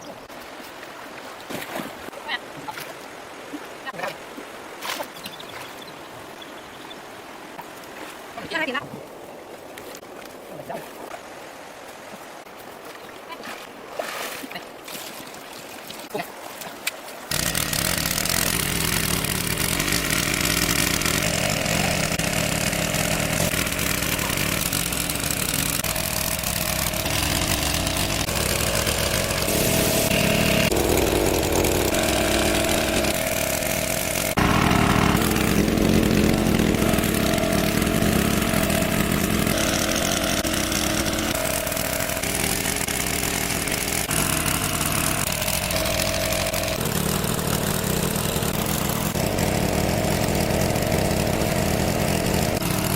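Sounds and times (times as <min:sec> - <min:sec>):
small gasoline water pump engine: 0:17.3 - 0:52.9.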